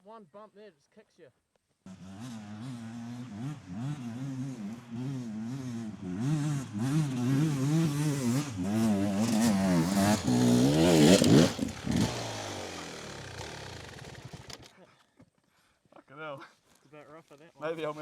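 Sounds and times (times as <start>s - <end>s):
dirt bike engine revving: 1.9s - 14.7s.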